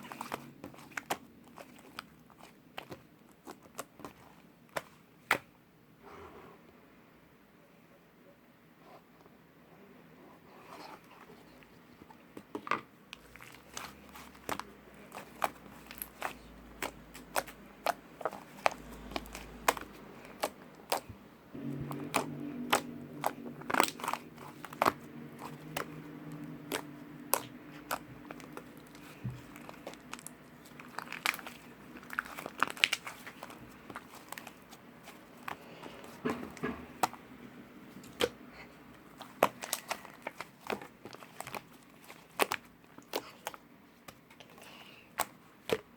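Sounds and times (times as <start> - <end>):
slime clicking and crackling: 0.0 - 5.5, 13.1 - 45.9
low hum: 21.3 - 28.4.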